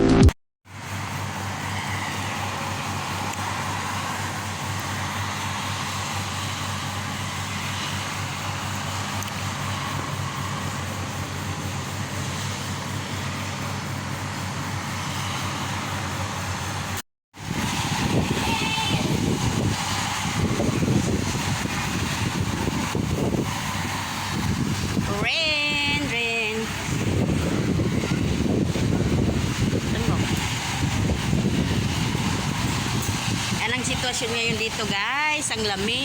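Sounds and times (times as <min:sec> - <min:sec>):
heavy rain: 0:00.7 - 0:12.3, 0:17.4 - 0:25.1, 0:26.1 - 0:34.8
strong wind: 0:00.7 - 0:36.0.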